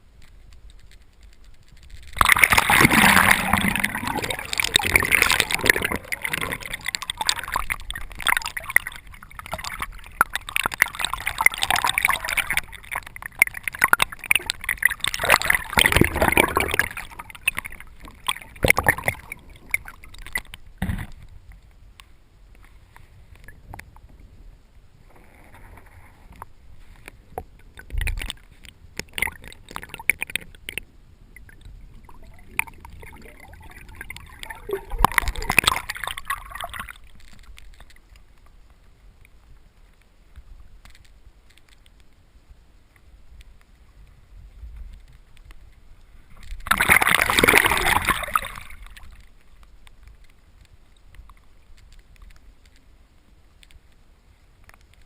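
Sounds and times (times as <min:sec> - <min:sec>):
water splashing: 0:01.7 - 0:21.2, 0:26.8 - 0:38.2, 0:46.3 - 0:49.6
water sloshing around kayak: 0:02.1 - 0:21.1.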